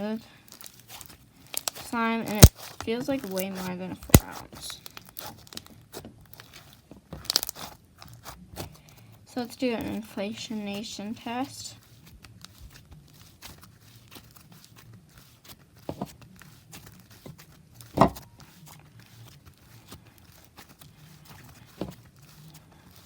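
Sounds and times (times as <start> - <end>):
slime sticky clicks and crackles: 0.5 - 6.6, 7.2 - 8.1
slime popping: 1.5 - 2.7, 7.2 - 7.7.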